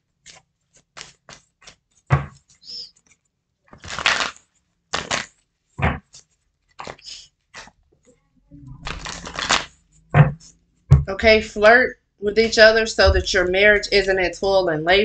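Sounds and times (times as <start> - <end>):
cards riffling: 0.2 - 5.4, 6.0 - 7.8, 8.8 - 9.8
heavy taps: 10.1 - 11.4.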